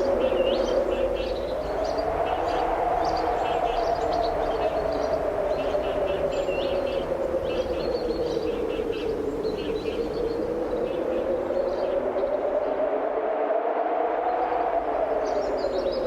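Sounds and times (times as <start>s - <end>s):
birds chirping: 0.0s - 12.7s
strong wind blowing: 0.0s - 16.0s.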